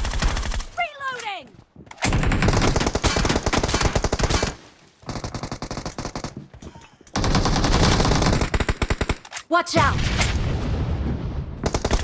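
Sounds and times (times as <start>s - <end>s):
video game automatic gunfire: 0.0s - 0.8s, 2.1s - 6.3s, 7.2s - 9.2s, 11.6s - 12.0s.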